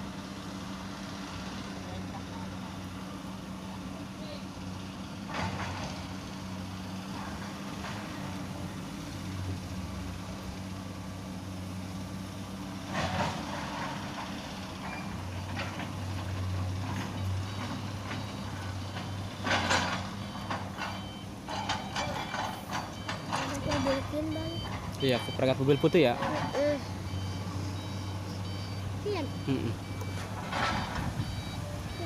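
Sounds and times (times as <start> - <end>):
truck engine idling: 0.0 - 5.3, 14.1 - 32.0.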